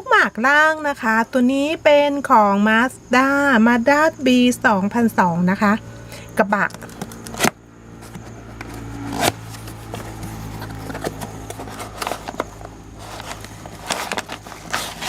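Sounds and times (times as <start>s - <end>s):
steady low hum: 0.0s - 15.0s
packaging rustling: 6.7s - 15.0s.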